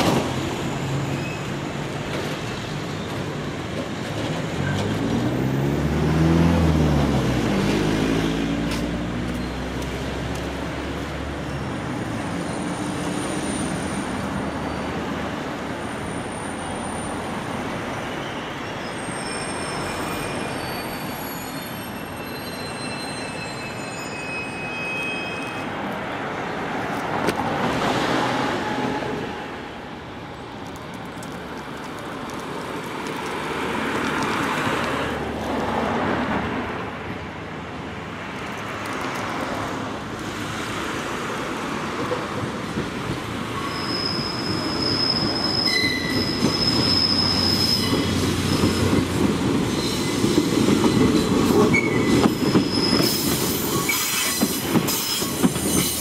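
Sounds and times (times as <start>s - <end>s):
wheels rumbling on rail: 0.0s - 56.0s
thin high wheel squeals: 18.0s - 25.8s, 43.5s - 49.0s, 51.0s - 56.0s.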